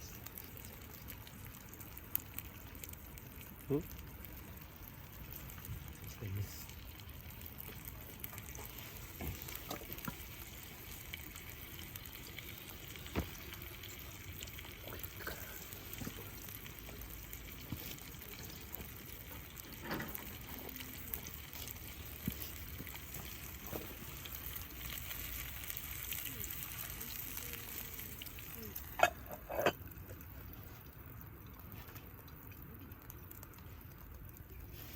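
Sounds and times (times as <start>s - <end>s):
meat sizzling in a skillet: 0.0s - 31.1s
fire crackling: 0.0s - 34.9s.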